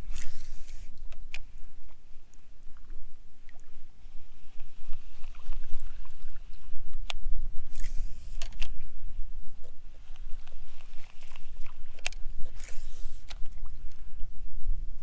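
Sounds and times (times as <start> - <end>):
kayak clicks and knocks: 0.1 - 1.6, 7.0 - 8.8, 10.4 - 13.6.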